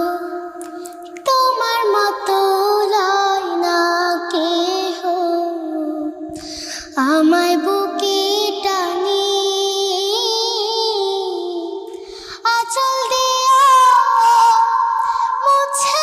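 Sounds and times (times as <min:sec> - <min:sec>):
person singing long notes: 0:12.6 - 0:16.0.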